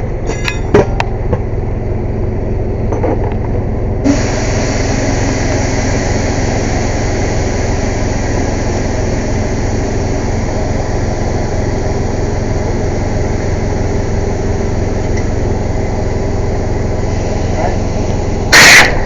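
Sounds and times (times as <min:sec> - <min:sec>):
air compressor running: 0:04.0 - 0:19.0.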